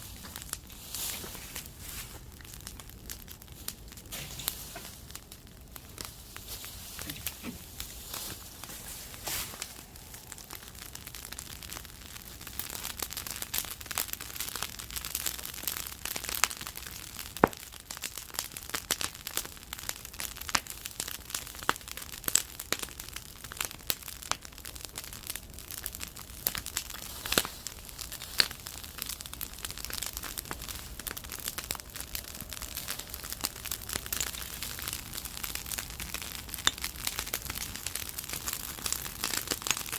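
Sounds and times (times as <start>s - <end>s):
fire hissing: 0.0s - 13.3s, 24.7s - 39.9s
bonfire crackling and popping: 0.0s - 39.9s.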